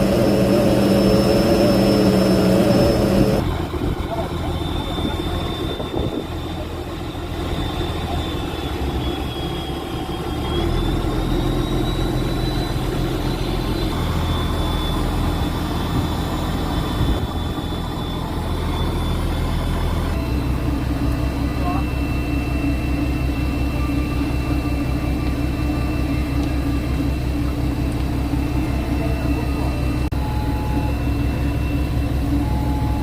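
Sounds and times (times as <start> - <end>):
boat engine droning: 0.0 - 33.0.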